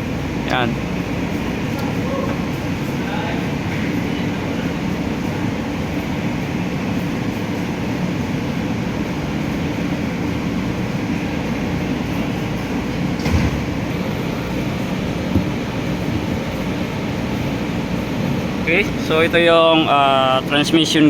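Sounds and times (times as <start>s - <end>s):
low mechanical rumble: 0.0s - 21.0s
single knock: 15.3s - 15.6s.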